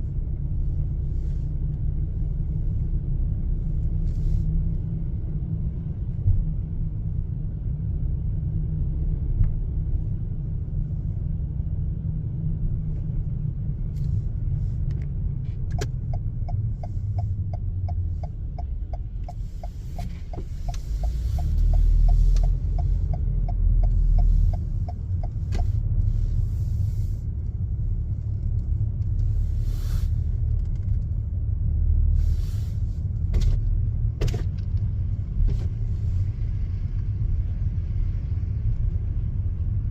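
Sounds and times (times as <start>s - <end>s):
car road rumble: 0.0s - 39.9s
turn signal ticking: 13.9s - 29.6s.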